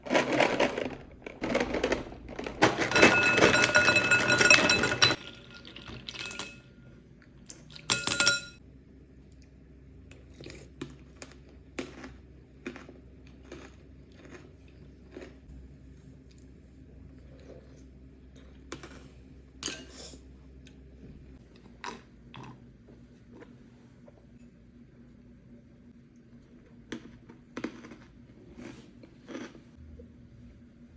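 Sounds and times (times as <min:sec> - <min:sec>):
cereal rattling into a bowl: 0:00.0 - 0:06.6
bowl ringing: 0:02.8 - 0:07.0, 0:07.9 - 0:08.6.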